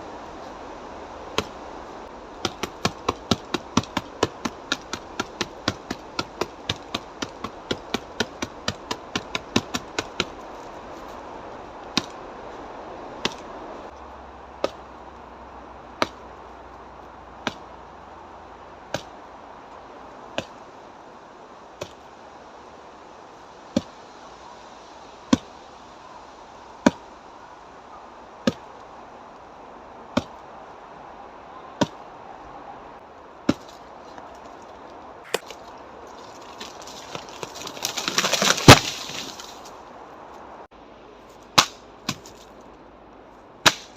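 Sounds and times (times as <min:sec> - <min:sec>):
strikes knocking on dry wood: 0:35.3 - 0:35.5.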